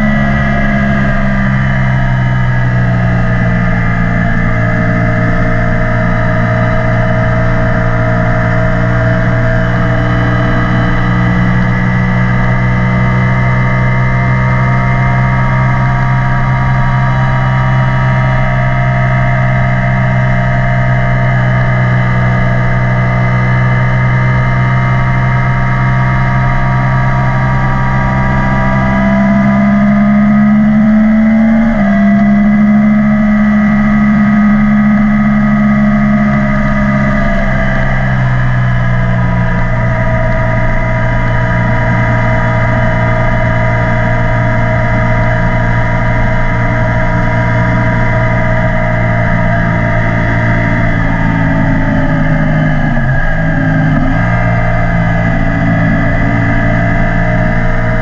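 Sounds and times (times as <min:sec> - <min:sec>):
motorcycle engine under way: 0:00.0 - 0:58.0.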